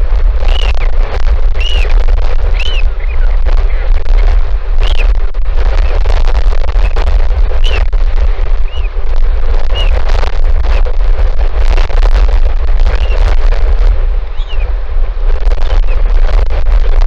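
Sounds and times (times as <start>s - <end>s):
strong wind buffeting microphone: 0.0s - 17.0s
bird chirps: 0.5s - 0.8s, 1.6s - 1.9s, 2.5s - 3.3s, 4.8s - 5.1s, 7.6s - 7.8s, 8.7s - 8.9s, 9.7s - 10.0s, 13.0s - 13.2s, 14.3s - 14.7s.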